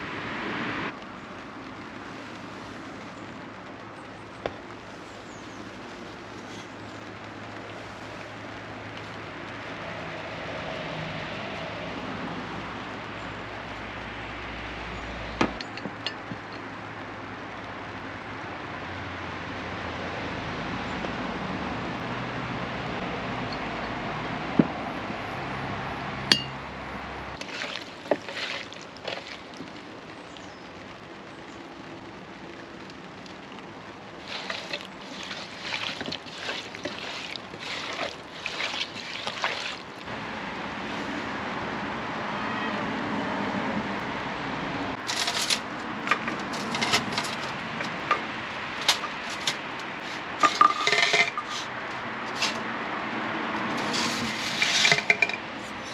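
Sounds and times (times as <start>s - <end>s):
rustling and clattering handling: 27.4s - 29.8s, 34.2s - 40.0s, 45.0s - 52.6s, 53.7s - 55.9s.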